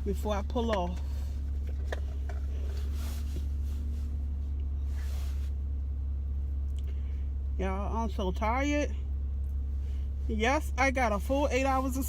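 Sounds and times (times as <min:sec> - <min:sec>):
car engine idling: 0:00.0 - 0:12.0
short rustles: 0:01.0 - 0:05.8.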